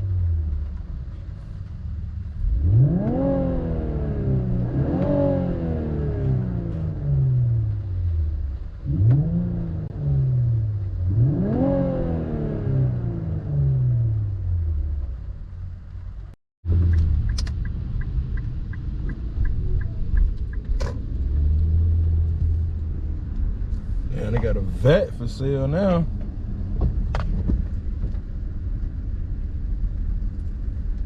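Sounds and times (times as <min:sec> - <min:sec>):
car engine revving: 0:00.0 - 0:28.1
car engine idling: 0:14.0 - 0:31.0
light ticking: 0:16.8 - 0:22.4.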